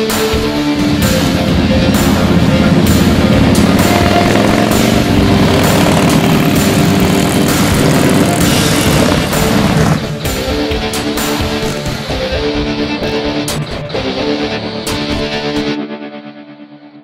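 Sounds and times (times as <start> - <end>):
rock music: 0.0 - 17.0
motorcycle exhaust note: 0.4 - 12.2.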